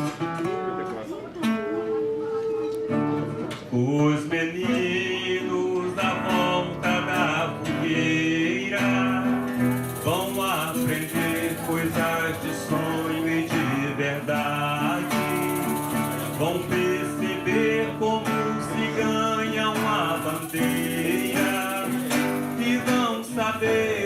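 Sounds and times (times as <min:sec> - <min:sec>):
guitar and cavaquinho strumming: 0:00.0 - 0:24.0
pandeiro strokes: 0:09.4 - 0:24.0.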